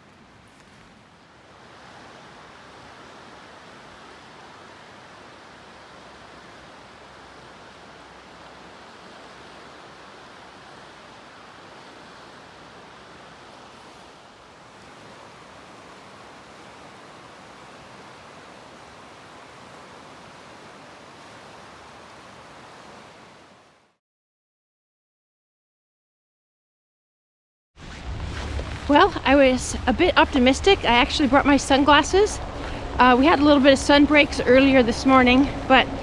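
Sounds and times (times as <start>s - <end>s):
rain hissing: 0.0s - 23.9s.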